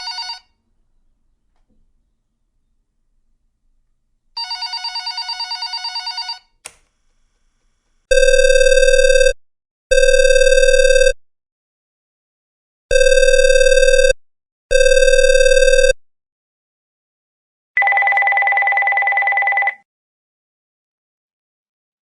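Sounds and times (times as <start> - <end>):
buzzy telephone line tone: 0.0 - 0.6, 8.1 - 11.2, 12.9 - 16.0, 17.8 - 19.8
electronic telephone ringing: 0.0 - 0.6, 4.4 - 6.6, 8.1 - 11.2, 12.9 - 16.0, 17.8 - 19.8
click: 6.6 - 7.0.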